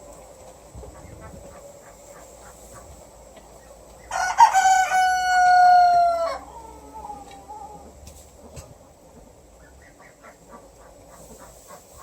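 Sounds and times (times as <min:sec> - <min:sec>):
rooster crowing: 0:04.1 - 0:07.2.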